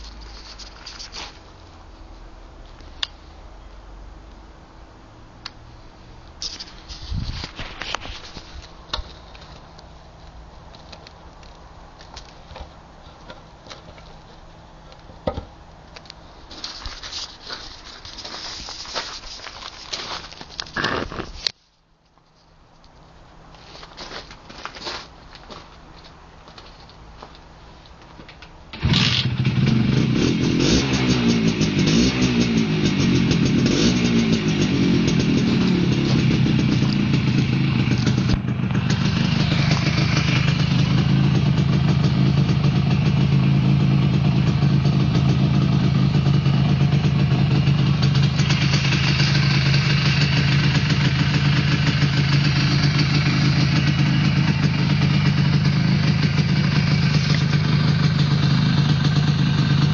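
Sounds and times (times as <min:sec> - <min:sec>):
two-stroke engine idling: 0:31.5 - 0:59.9.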